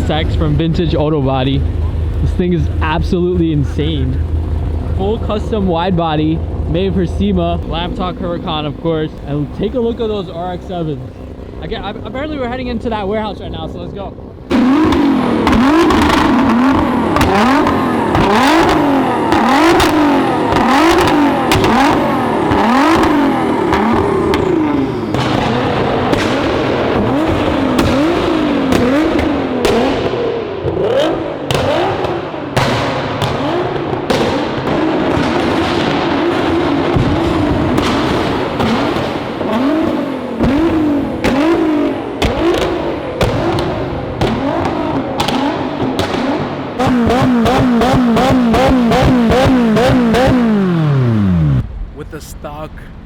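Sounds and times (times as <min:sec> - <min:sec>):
car engines revving: 0:00.0 - 0:53.0
exhaust cracks and pops: 0:14.5 - 0:52.1.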